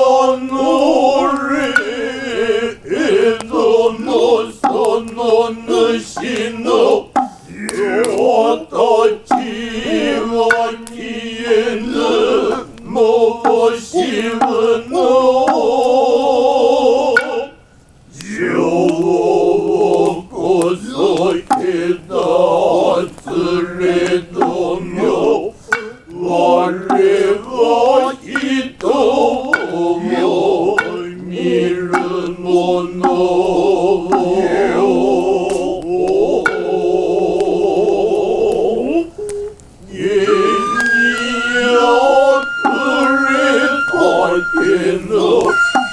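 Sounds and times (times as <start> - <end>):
men chanting together: 0.0 - 45.9
sharp knocks: 4.6 - 5.4, 6.2 - 6.5, 7.1 - 8.4, 9.3 - 11.1, 11.8 - 15.7, 21.2 - 21.8, 23.2 - 26.1, 26.8 - 27.3, 28.0 - 32.4, 33.0 - 34.5, 42.6 - 45.9.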